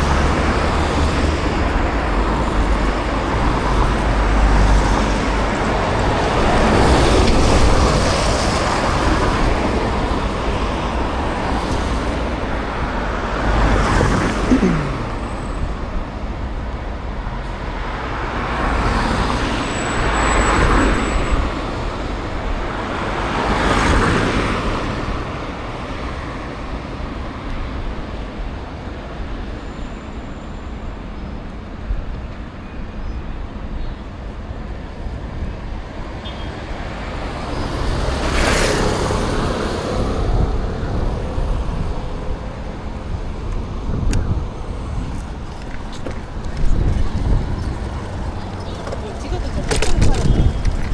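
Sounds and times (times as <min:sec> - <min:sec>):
motor vehicles passing: 0:00.0 - 0:16.2, 0:36.7 - 0:50.9.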